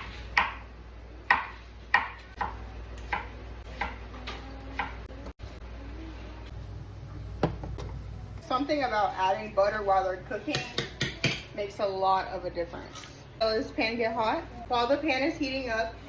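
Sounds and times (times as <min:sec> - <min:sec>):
knife chopping on cutting board: 0:01.2 - 0:05.0.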